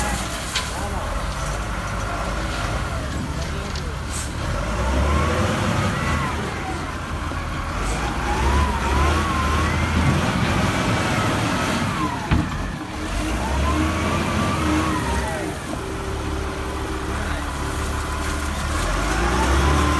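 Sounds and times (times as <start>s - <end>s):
loader diesel engine revving: 0.0s - 19.9s.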